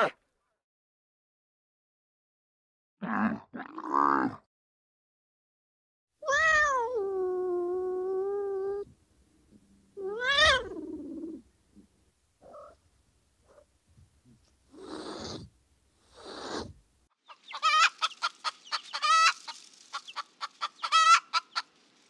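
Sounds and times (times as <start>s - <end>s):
animal crying out: 6.2s - 8.8s, 10.0s - 11.4s.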